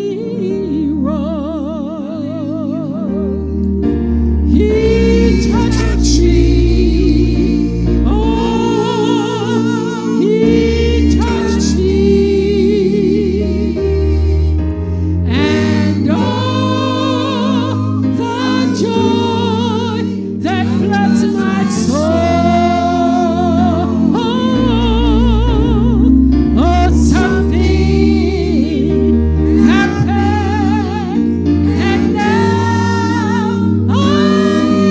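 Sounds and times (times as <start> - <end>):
bass and keyboard chords: 0.0 - 34.9
choir singing gospel music: 0.0 - 34.9.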